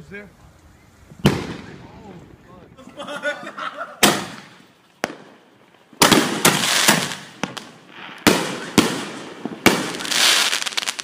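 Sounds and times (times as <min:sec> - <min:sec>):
fireworks crackling: 0:00.0 - 0:11.0
fireworks banging: 0:01.1 - 0:11.0.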